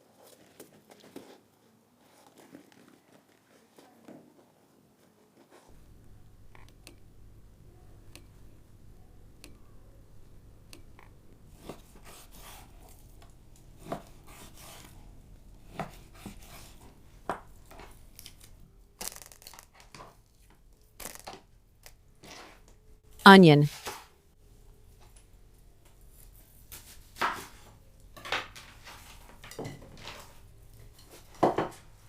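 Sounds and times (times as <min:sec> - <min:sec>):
faint low hum: 0:05.7 - 0:18.8.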